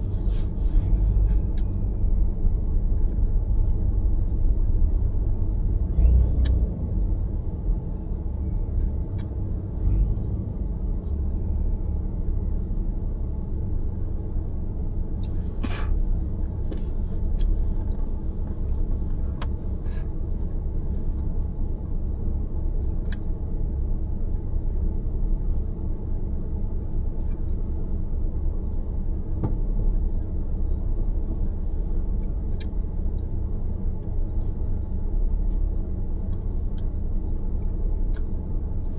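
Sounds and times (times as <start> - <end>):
road and engine rumble: 0.0 - 38.9.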